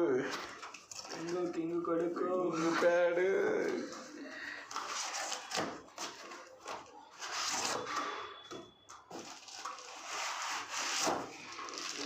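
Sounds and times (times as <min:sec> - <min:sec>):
plastic and cardboard rustling: 0:00.1 - 0:12.0.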